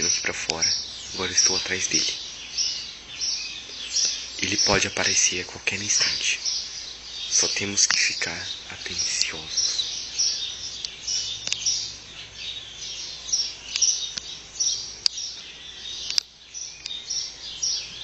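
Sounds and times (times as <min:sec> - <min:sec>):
sharp clicks: 0:00.0 - 0:00.8, 0:09.1 - 0:09.4, 0:10.8 - 0:11.7, 0:13.7 - 0:14.4, 0:15.0 - 0:15.4, 0:16.0 - 0:17.0
birds chirping: 0:00.0 - 0:18.0.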